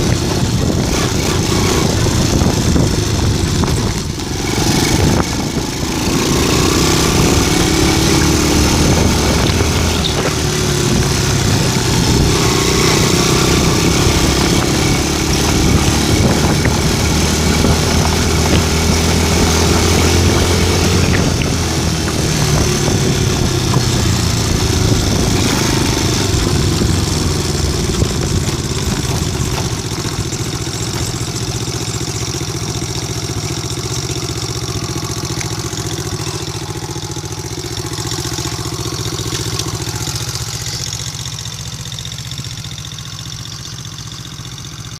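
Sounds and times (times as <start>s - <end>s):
engine idling exhaust: 0.0s - 44.9s.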